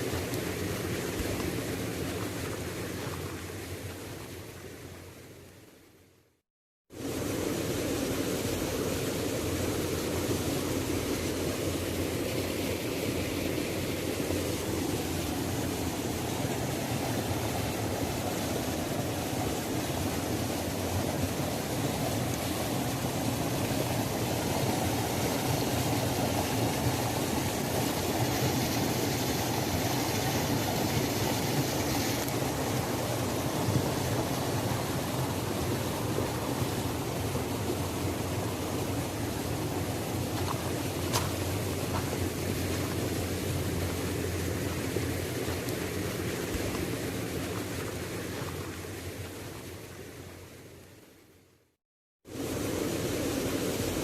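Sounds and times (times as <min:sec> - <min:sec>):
waterfall rushing: 0:13.2 - 0:48.1.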